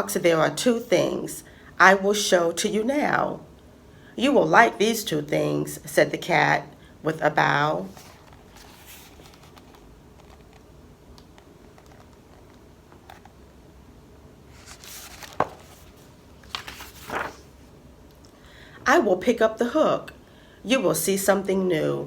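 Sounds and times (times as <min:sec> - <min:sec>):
paper rustling: 0:07.9 - 0:10.6, 0:11.6 - 0:13.3, 0:14.5 - 0:17.7.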